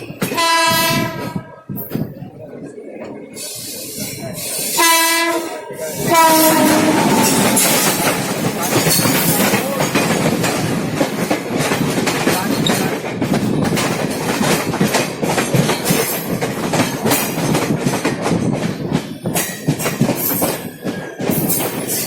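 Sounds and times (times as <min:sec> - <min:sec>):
train rumble: 0:00.0 - 0:22.0
wheels clattering over rail joints: 0:05.8 - 0:22.0.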